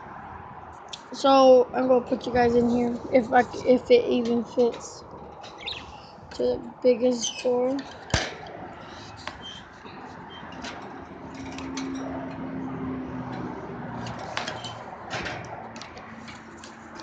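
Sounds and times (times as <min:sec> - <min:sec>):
knocks and clicks against wire cage: 0:07.8 - 0:17.0.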